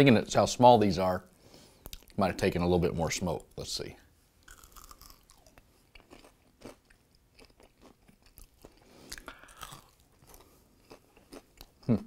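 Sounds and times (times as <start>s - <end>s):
chewing crunchy food: 4.4s - 12.0s.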